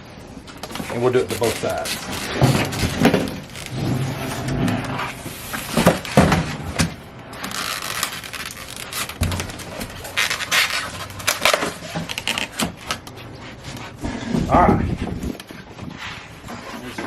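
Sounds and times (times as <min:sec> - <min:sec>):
plastic parts clacking and scraping: 0:00.4 - 0:13.2.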